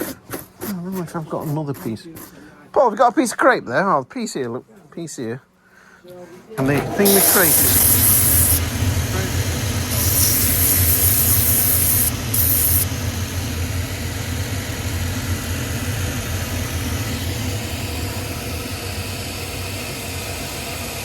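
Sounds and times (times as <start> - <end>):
low machine hum: 6.6 - 21.0
loud hissing bursts: 7.0 - 19.5.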